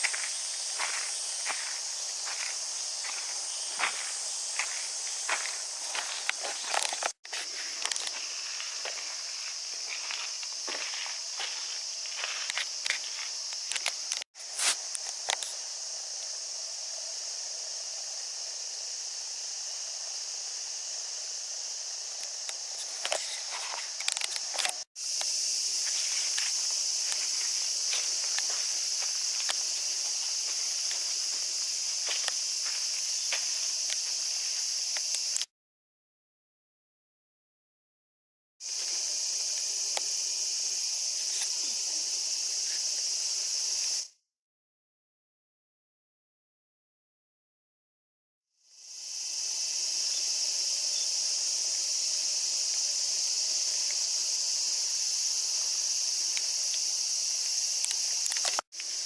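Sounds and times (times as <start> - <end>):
crunching footsteps: 0.0 - 15.6, 22.2 - 35.2
cicadas buzzing: 0.0 - 35.5, 38.6 - 44.2, 48.6 - 59.0.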